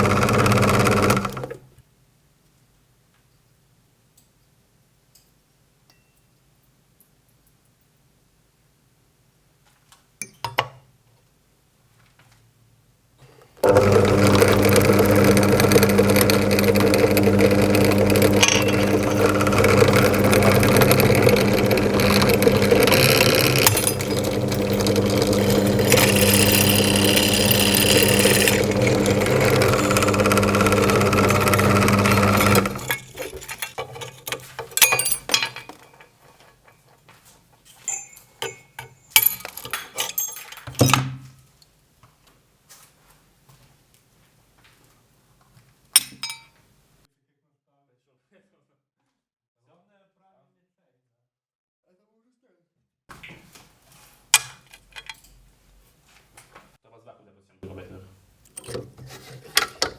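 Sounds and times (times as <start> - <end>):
electric drill grinding: 0.0 - 1.6, 13.6 - 34.3
clinks and knocks: 13.6 - 36.9, 37.7 - 41.1, 46.0 - 46.6, 58.5 - 59.9.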